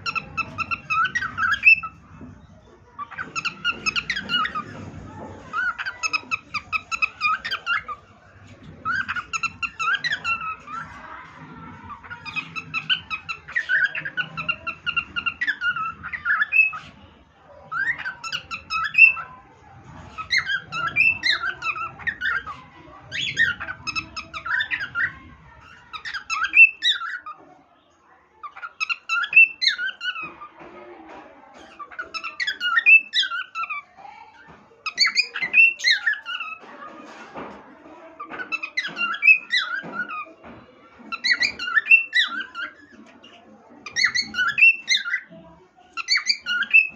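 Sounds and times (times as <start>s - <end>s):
cockatiel whistling a tune: 46.0s - 46.9s.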